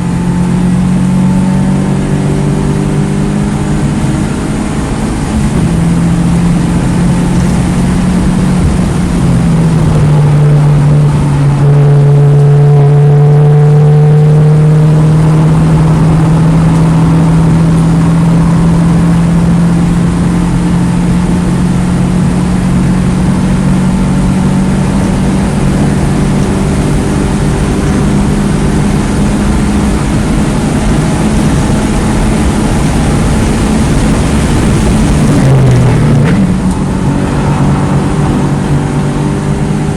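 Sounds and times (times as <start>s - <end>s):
car engine running hard: 0.0s - 39.9s
wind and tyre noise: 0.0s - 39.9s.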